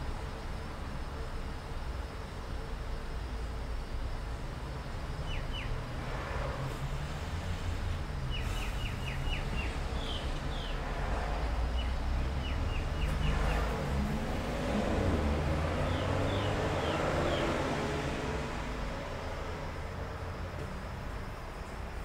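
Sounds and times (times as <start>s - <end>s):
birds chirping: 8.2s - 10.8s, 11.6s - 14.0s, 15.4s - 17.7s.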